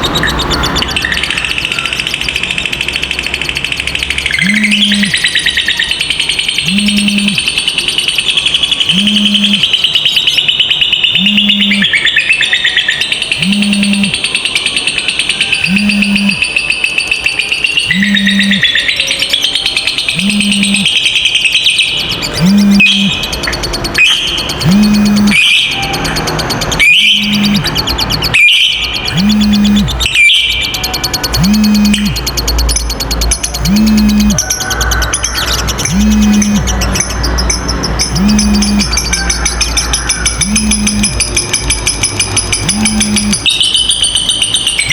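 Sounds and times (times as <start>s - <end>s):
lovebird chattering trill: 0.0s - 44.9s
low hum: 4.4s - 5.2s, 6.6s - 7.4s, 13.4s - 14.2s, 15.6s - 16.4s, 22.4s - 23.2s, 24.6s - 25.4s, 27.2s - 27.9s, 29.1s - 30.0s, 31.4s - 32.3s, 33.6s - 34.4s, 35.8s - 36.7s, 38.1s - 39.0s, 40.4s - 41.2s, 42.6s - 43.4s.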